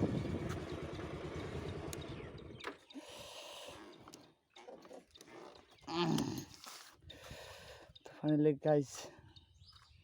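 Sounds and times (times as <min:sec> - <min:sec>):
motorbike engine running: 0:00.0 - 0:02.6.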